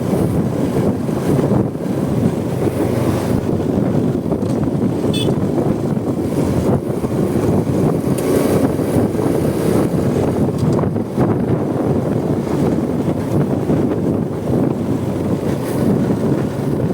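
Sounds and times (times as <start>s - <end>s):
motorcycle engine: 0.0s - 16.9s
wind rushing over microphone: 0.0s - 16.9s.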